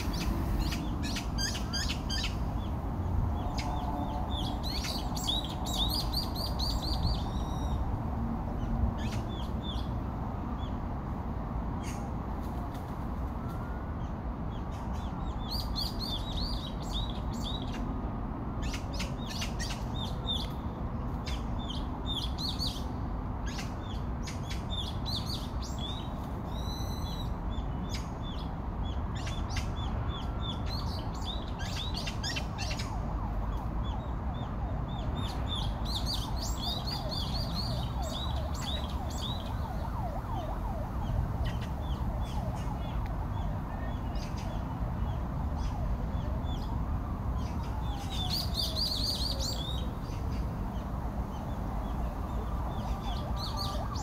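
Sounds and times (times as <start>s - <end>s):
birds chirping and twittering: 0.0s - 7.9s, 8.5s - 10.8s, 14.0s - 18.0s, 18.6s - 54.0s
low rushing background noise: 0.0s - 54.0s.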